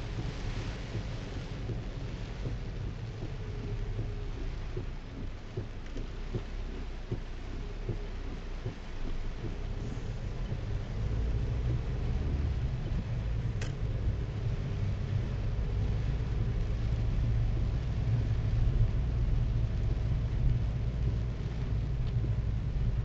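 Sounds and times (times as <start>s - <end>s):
engine and tyres rumbling: 0.0s - 23.0s
rain hissing: 0.0s - 23.0s.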